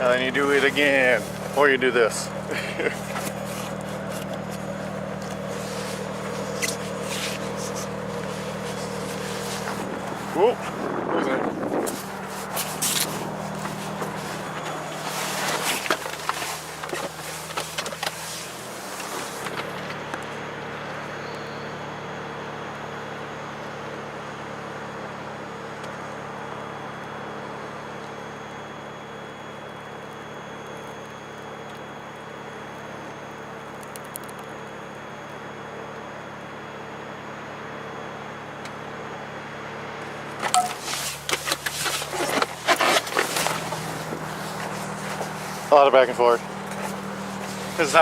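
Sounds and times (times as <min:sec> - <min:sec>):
faint whining tones: 0:00.0 - 0:23.8, 0:25.8 - 0:48.0
car engine running at low revs: 0:00.0 - 0:48.0
scraping and knocking noises: 0:40.4 - 0:45.7.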